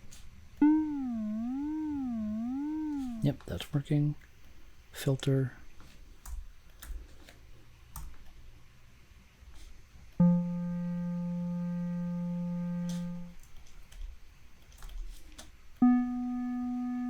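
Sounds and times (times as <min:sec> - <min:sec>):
sustained synthesizer note: 0:00.6 - 0:03.3, 0:10.2 - 0:13.3, 0:15.8 - 0:17.0.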